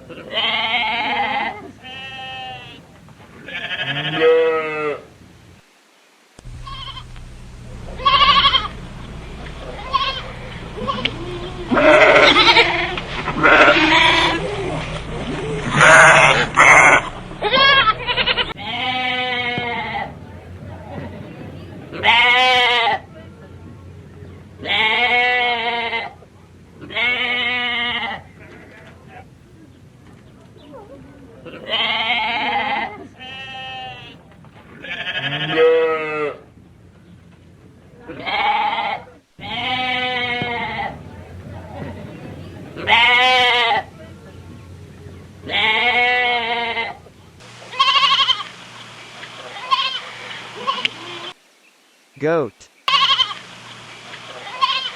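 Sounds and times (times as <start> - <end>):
sheep bleating: 0.1 - 2.8, 3.5 - 5.0, 6.6 - 7.2, 7.9 - 8.8, 9.4 - 20.1, 21.9 - 23.0, 24.6 - 26.2, 26.8 - 29.3, 31.5 - 34.2, 34.8 - 36.4, 38.1 - 41.0, 42.8 - 43.9, 45.4 - 47.0, 47.6 - 48.6, 49.4 - 51.4, 52.9 - 53.5, 54.3 - 54.9.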